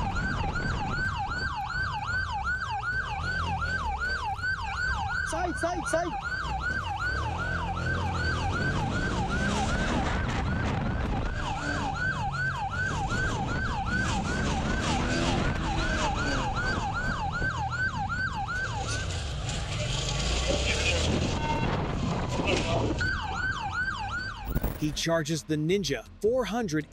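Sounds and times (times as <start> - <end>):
police siren yelping: 0.0 - 19.3, 22.8 - 24.8.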